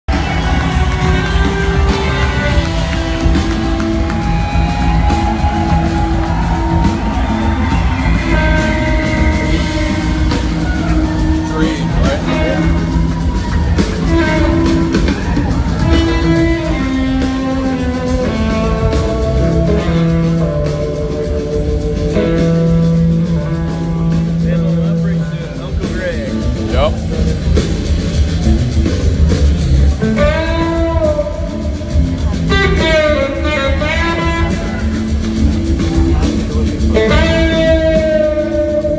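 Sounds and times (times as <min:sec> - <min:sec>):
rock band playing: 0:00.0 - 0:38.9
electric slide guitar: 0:00.1 - 0:25.2, 0:28.6 - 0:38.9.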